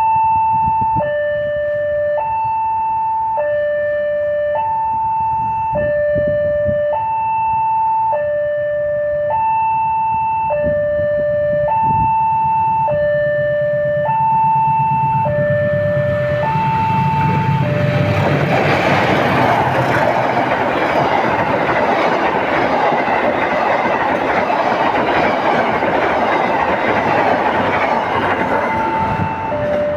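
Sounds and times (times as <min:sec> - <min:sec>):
level-crossing two-tone alarm: 0:00.0 - 0:29.9
train passing: 0:11.1 - 0:29.9.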